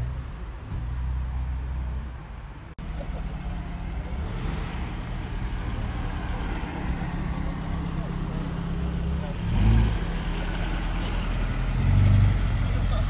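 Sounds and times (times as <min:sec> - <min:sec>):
car driving slowly past: 0:00.0 - 0:13.0
car engine idling: 0:05.0 - 0:13.0.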